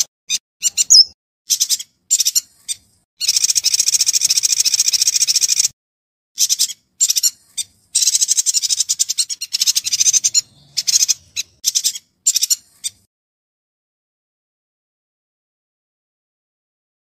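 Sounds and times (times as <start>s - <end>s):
bird singing rapid trills: 0.6s - 5.7s, 6.4s - 13.1s.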